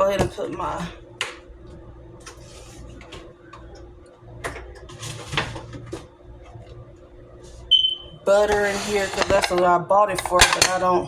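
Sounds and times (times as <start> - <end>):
low refrigerator hum: 0.0 - 11.0
containers clicking and knocking: 8.4 - 11.0.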